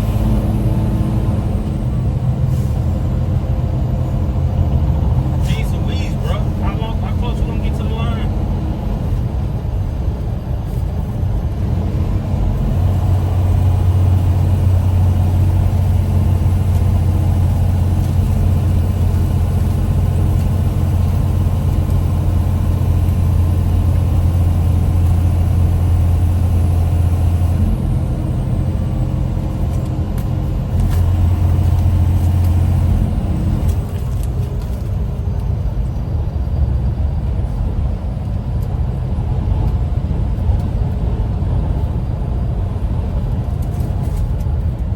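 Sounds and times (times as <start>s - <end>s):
vehicle engine running: 0.0s - 44.9s.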